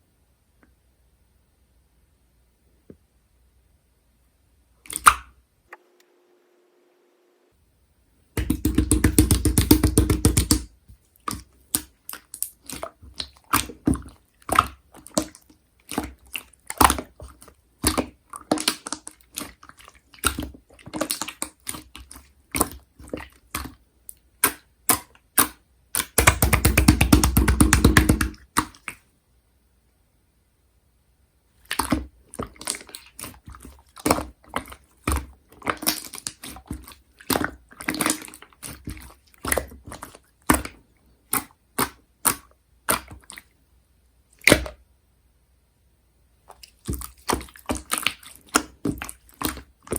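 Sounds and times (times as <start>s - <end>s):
slime squishing and popping: 4.9s - 5.3s, 8.4s - 23.8s, 24.4s - 29.0s, 31.6s - 43.5s, 44.4s - 44.8s, 46.5s - 49.9s
slime crackling: 31.6s - 43.5s, 46.5s - 49.9s.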